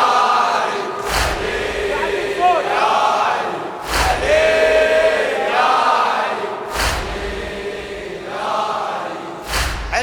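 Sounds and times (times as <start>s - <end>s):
crowd chanting in unison: 0.0s - 10.0s
collective chest-beating thump: 1.0s - 5.6s, 6.6s - 8.6s, 9.4s - 10.0s.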